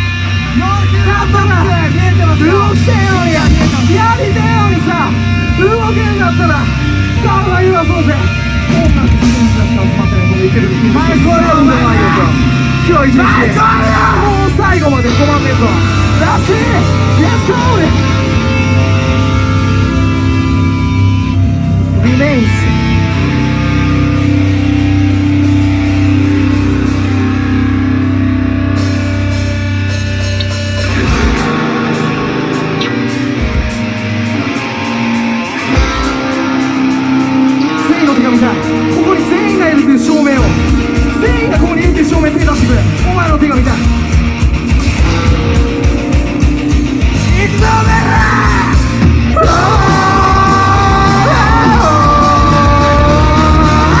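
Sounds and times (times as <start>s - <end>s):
heavy rock band with electric guitar: 0.0s - 54.0s
vocalist shouting and singing: 0.5s - 18.6s, 22.0s - 22.9s, 37.4s - 44.0s, 47.1s - 54.0s.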